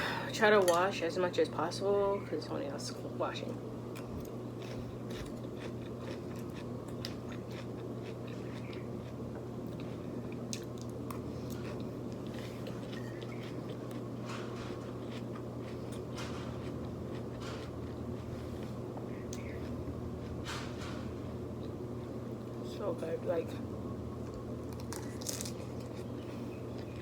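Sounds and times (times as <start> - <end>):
electric fan hum: 0.0 - 27.0
chewing mouth noises: 3.9 - 20.4.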